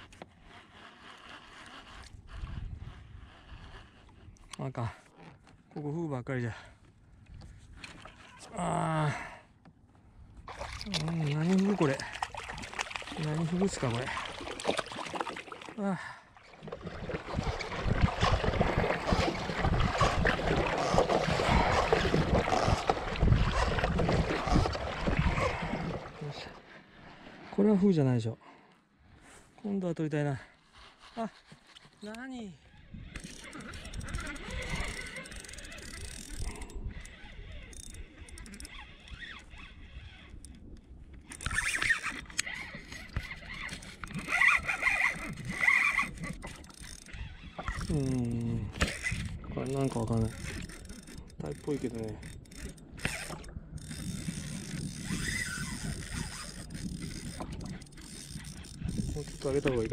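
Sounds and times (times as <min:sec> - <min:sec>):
fishing reel rasping whirr: 0:00.0 - 0:05.3, 0:10.9 - 0:15.6, 0:17.4 - 0:25.7, 0:30.4 - 0:59.9
wind buffeting microphone: 0:02.0 - 0:04.5, 0:16.6 - 0:26.3, 0:32.8 - 0:59.9
water splashing against hull: 0:09.7 - 0:27.8, 0:30.6 - 0:59.9.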